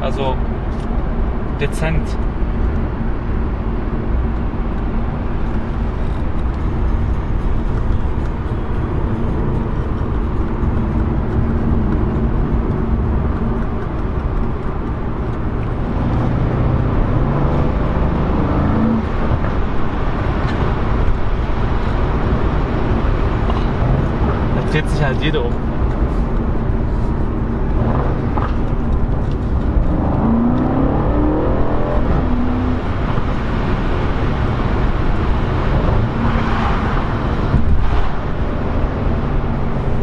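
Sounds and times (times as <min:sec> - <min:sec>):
car engine droning: 0:00.0 - 0:40.0.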